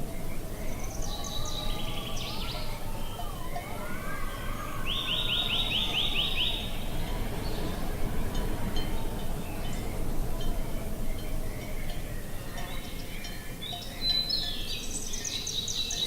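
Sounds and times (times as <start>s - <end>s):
small songbirds singing: 0.0s - 16.0s
low rushing noise: 4.3s - 13.1s.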